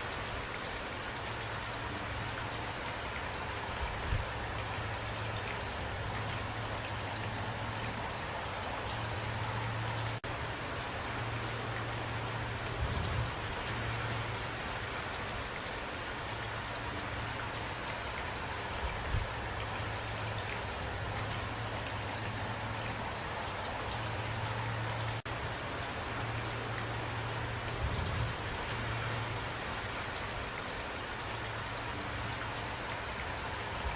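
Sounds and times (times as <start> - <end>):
constant low rumble: 1.1 - 15.4, 16.1 - 32.6
raindrop ticks: 28.6 - 33.9.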